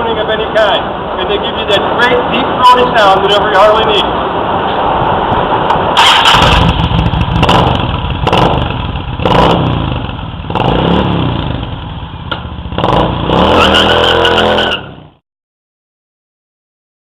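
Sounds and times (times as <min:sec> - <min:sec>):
motorcycle engine revving: 0:05.9 - 0:15.2.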